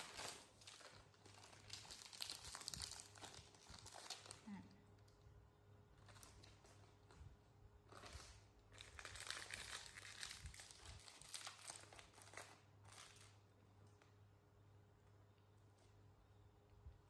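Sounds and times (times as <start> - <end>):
plastic snack bag crinkling: 0.0 - 5.2, 6.0 - 14.2.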